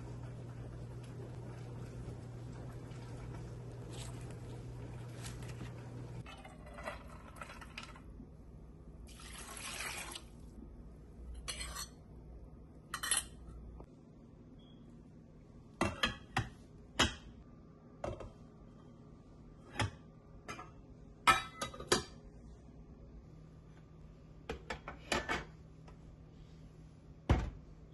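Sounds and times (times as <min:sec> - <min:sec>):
running water: 0:09.1 - 0:10.4.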